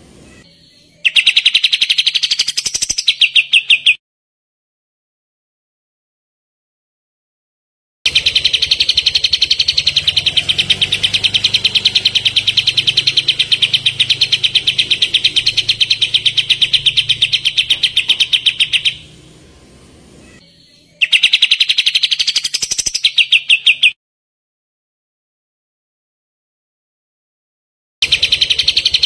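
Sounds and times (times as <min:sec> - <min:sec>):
bird fast high trill: 0:08.1 - 0:24.0, 0:28.0 - 0:29.0.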